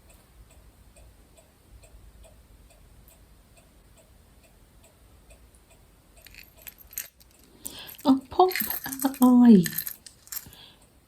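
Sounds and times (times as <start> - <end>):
faint clock ticking: 0.0 - 6.2.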